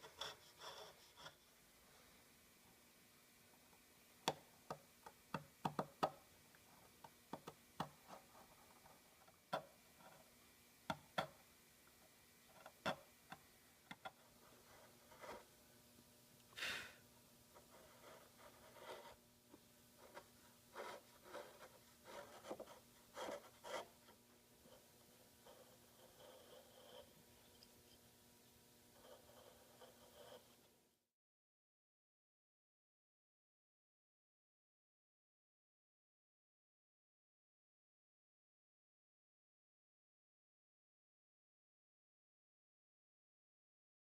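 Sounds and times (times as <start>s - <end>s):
tools tapping and clicking on wood: 4.2s - 6.2s, 7.0s - 8.0s.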